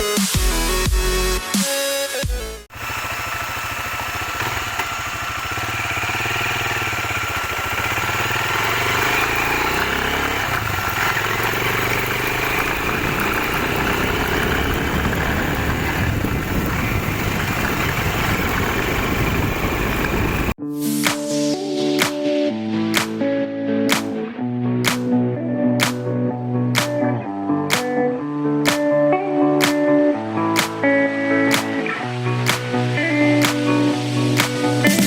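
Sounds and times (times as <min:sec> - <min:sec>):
motorcycle engine running: 0:02.7 - 0:20.6.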